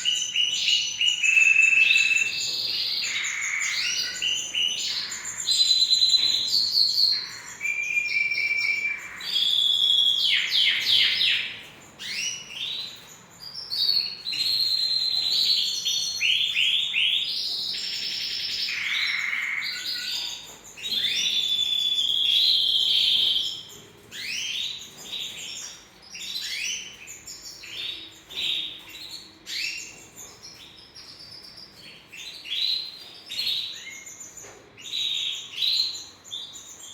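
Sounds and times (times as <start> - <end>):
canary singing trills: 0.0 - 36.9.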